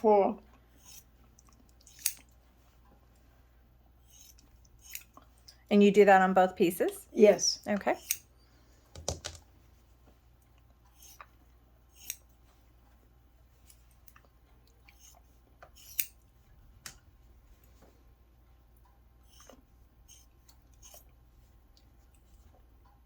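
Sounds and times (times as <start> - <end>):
scissors snipping fabric: 0.8 - 1.1, 1.7 - 2.3, 4.0 - 5.2, 7.8 - 8.3, 10.9 - 11.3, 11.9 - 12.3, 14.9 - 16.2, 20.1 - 21.1.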